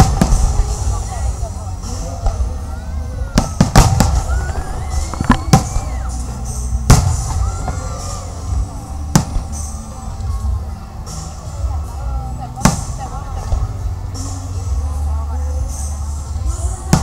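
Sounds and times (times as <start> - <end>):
low rumble: 0.0 - 11.0
fireworks bangs: 3.3 - 6.0.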